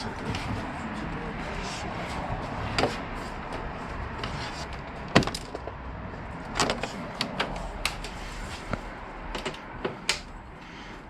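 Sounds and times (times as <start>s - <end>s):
plastic panels clicking and knocking: 4.2s - 5.8s, 6.5s - 8.2s, 9.3s - 10.3s.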